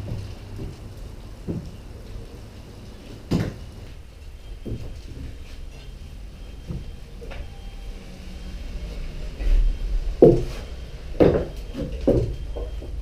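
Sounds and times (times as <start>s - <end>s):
low rumble: 7.4s - 11.2s
short knocks and thumps: 10.2s - 13.0s.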